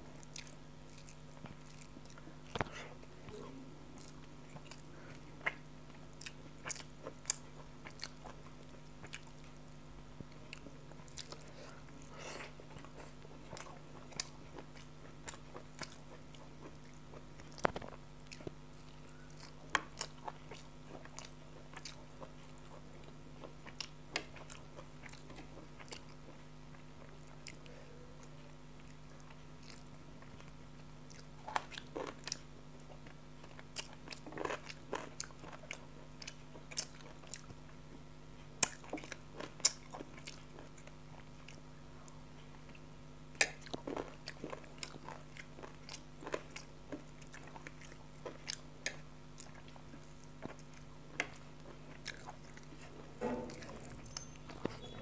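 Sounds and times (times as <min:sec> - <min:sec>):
chewing and mouth smacks: 0:00.2 - 0:03.4, 0:04.0 - 0:38.0, 0:38.6 - 0:55.0
low hum: 0:03.0 - 0:05.5, 0:52.2 - 0:55.0.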